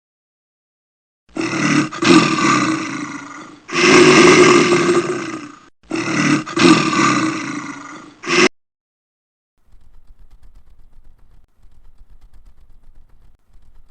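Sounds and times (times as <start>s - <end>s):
large animal roaring: 1.3s - 8.5s.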